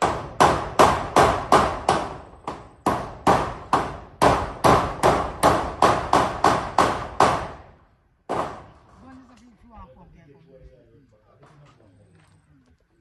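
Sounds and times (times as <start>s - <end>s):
hammer striking nails through metal: 0.0s - 7.6s.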